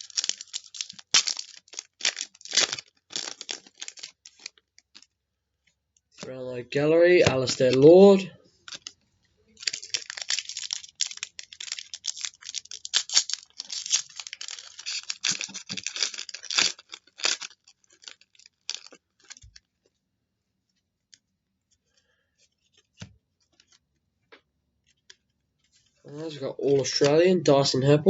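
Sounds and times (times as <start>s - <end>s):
wrapper tearing and crinkling: 0.0s - 5.1s, 8.7s - 8.9s, 9.6s - 19.7s.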